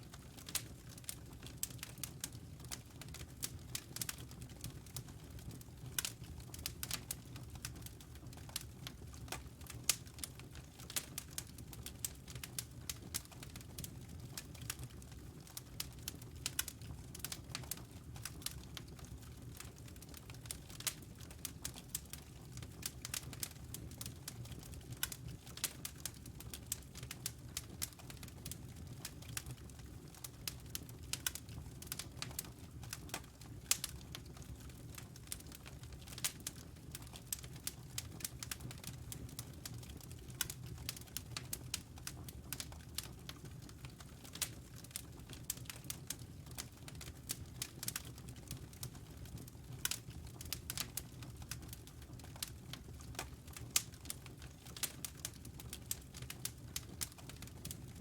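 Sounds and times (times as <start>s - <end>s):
wood fire crackling: 0.0s - 58.0s
snaps and pops of burning logs: 25.0s - 29.5s, 30.2s - 48.1s, 49.8s - 57.8s.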